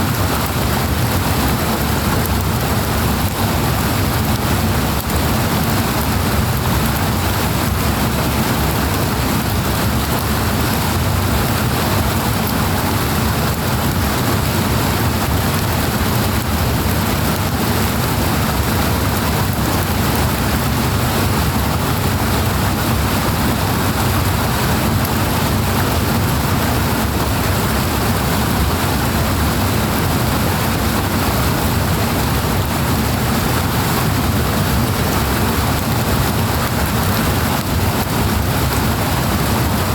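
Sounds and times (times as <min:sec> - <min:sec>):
powerful rushing water: 0:00.0 - 0:39.9.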